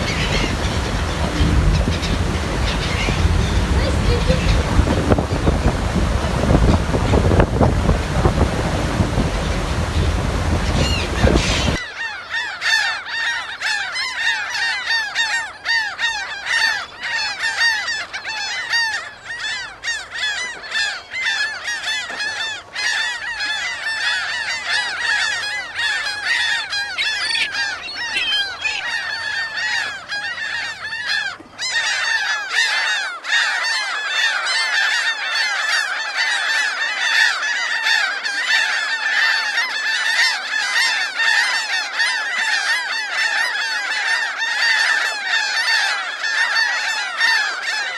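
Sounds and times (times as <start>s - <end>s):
low rumble: 0.0s - 11.8s
surf: 0.0s - 11.8s
gulls crying: 0.0s - 11.9s, 22.6s - 35.1s.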